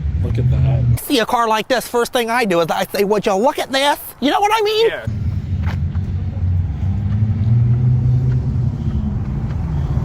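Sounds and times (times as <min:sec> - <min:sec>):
car engine rumbling: 0:00.0 - 0:01.2, 0:05.1 - 0:10.0.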